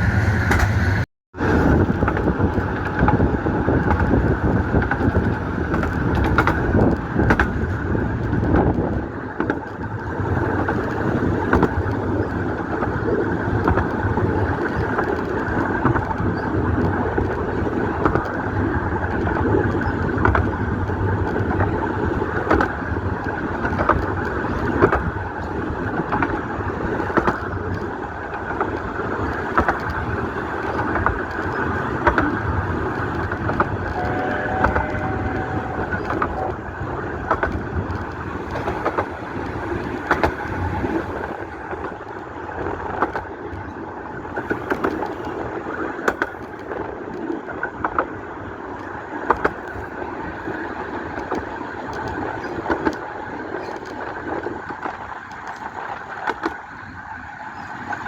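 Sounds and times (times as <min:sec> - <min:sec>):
miniature train rumbling: 0:00.0 - 0:58.0
sharp rail clicks: 0:00.0 - 0:58.0
faint two-note tone: 0:33.9 - 0:37.3.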